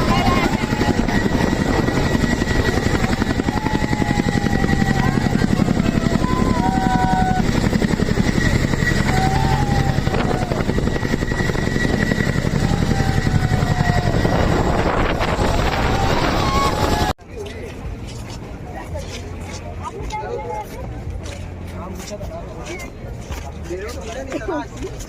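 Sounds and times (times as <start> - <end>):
helicopter rotor chopping: 0.0 - 20.0.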